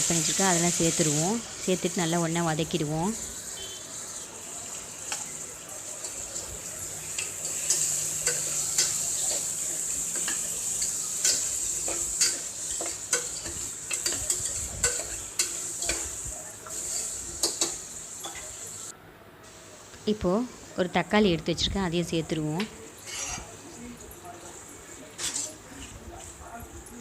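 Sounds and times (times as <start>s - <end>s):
vegetables sizzling in oil: 0.0s - 18.9s, 19.5s - 25.7s
stirrer scraping metal pot: 23.1s - 23.5s.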